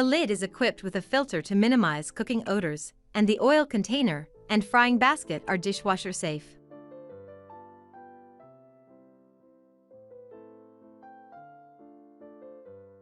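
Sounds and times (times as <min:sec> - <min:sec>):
soft piano music: 0:00.0 - 0:02.6, 0:03.9 - 0:13.0.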